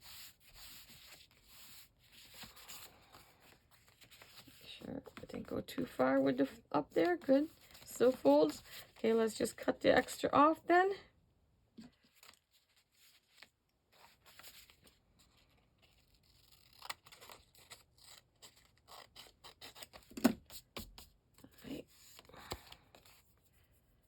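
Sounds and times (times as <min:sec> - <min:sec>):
paper scraping and rustling: 0:00.0 - 0:09.7, 0:11.8 - 0:20.6
scissors snipping paper: 0:16.2 - 0:21.1.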